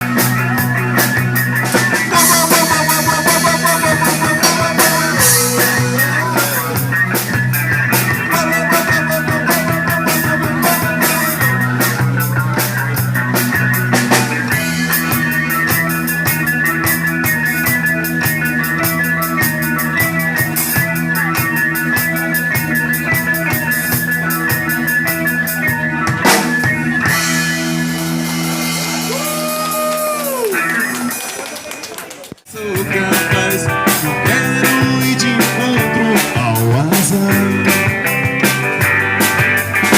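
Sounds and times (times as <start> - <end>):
bass notes: 0.0 - 31.2, 32.6 - 39.9
guitar melody: 0.0 - 31.3, 32.6 - 39.9
drum kit playing: 0.0 - 31.8, 32.5 - 39.9.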